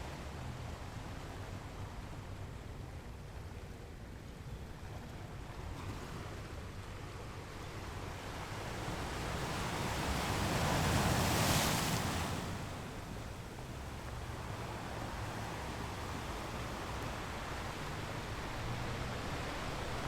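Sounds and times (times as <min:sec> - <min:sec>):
ocean waves breaking on rocks: 0:08.4 - 0:13.9.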